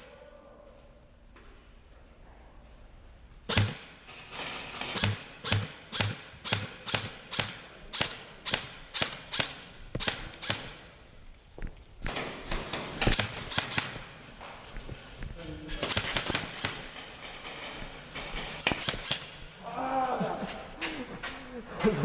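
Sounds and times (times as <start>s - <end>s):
crunching footsteps: 14.0s - 16.2s.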